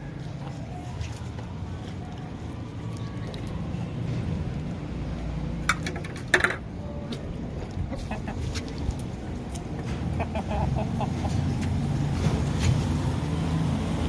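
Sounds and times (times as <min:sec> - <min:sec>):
hens clucking: 0:07.7 - 0:09.1, 0:09.7 - 0:11.8.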